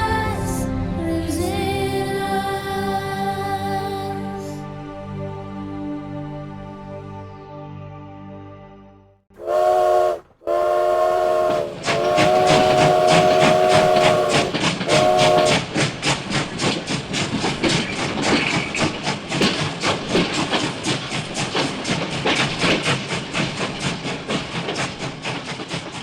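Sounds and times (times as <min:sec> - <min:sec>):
steam locomotive whistle: 0:09.4 - 0:15.7
steam locomotive chuffing: 0:09.4 - 0:26.0.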